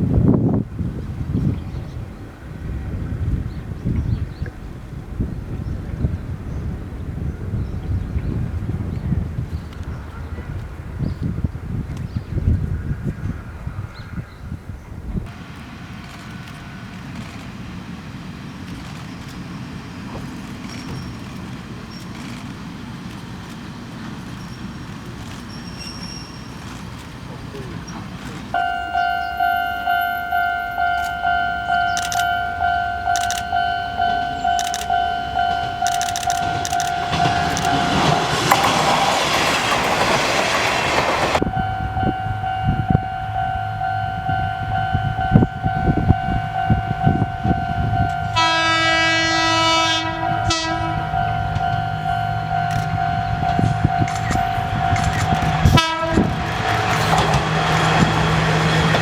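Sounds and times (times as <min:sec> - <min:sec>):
train passing: 0:00.0 - 0:59.0
level crossing bell clanging: 0:28.5 - 0:39.0, 0:41.0 - 0:48.9, 0:50.1 - 0:56.0
train horn: 0:28.6 - 0:39.1, 0:41.4 - 0:59.0.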